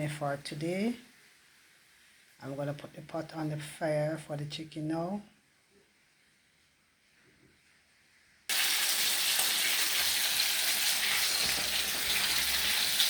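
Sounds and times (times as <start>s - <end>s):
chicken sizzling in hot oil: 8.5s - 13.0s.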